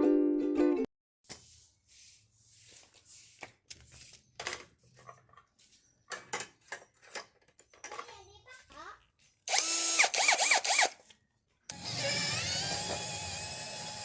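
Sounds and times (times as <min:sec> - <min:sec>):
small parts being handled: 0:02.9 - 0:08.4.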